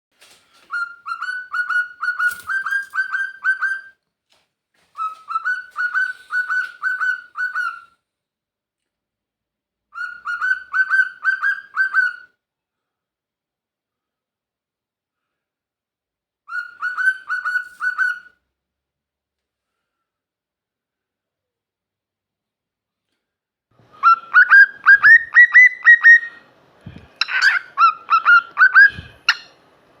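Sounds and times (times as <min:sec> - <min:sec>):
cockatiel calls: 0:00.7 - 0:03.9, 0:05.0 - 0:07.9, 0:10.0 - 0:12.3, 0:16.5 - 0:18.3, 0:24.0 - 0:26.4, 0:27.2 - 0:29.5.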